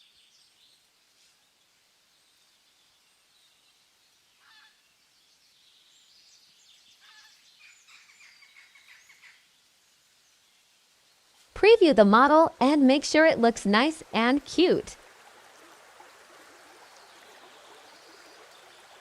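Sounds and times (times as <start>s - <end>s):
faint high bird chirping: 5.8s - 9.4s.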